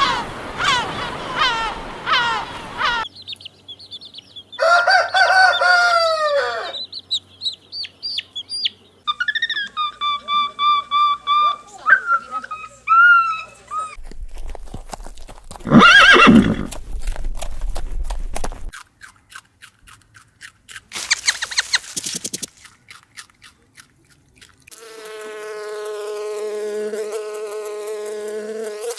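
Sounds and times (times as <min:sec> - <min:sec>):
hooves clip-clopping: 0:14.0 - 0:18.8
horse neighing: 0:15.6 - 0:16.8
bee buzzing: 0:24.7 - 0:28.9.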